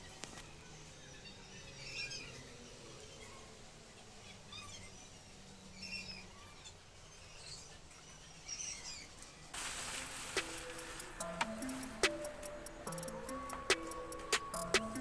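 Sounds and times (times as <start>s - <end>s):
faint bird chirps: 0.0s - 15.0s
plucked music with ticking beat: 10.3s - 15.0s.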